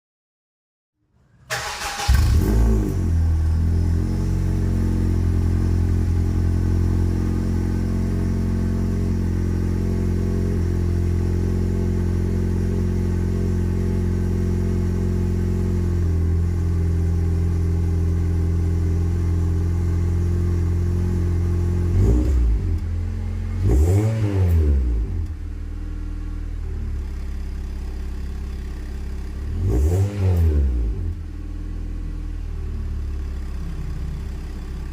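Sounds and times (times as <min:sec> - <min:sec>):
engine revving: 0:01.5 - 0:17.2, 0:21.1 - 0:25.4, 0:29.2 - 0:31.3
car engine idling: 0:01.5 - 0:24.1, 0:24.8 - 0:29.7, 0:30.8 - 0:34.9.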